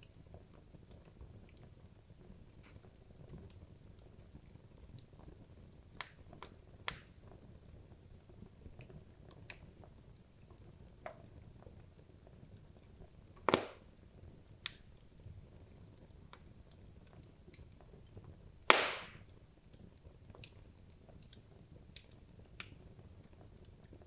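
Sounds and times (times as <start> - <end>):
logs burning in fireplace: 0.0 - 24.0
loud fire pops: 13.4 - 14.0, 18.6 - 19.4.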